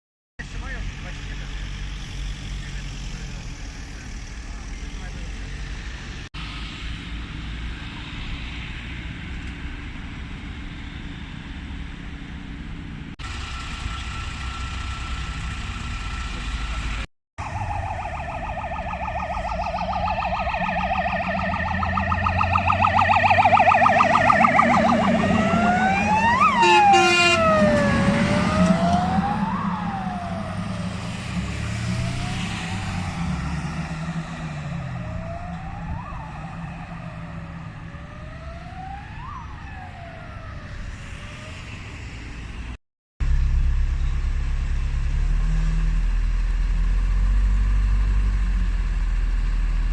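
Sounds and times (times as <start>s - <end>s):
traffic and engine noise: 0.4s - 49.9s
fire engine siren: 13.2s - 42.4s
horn blast: 21.2s - 29.0s.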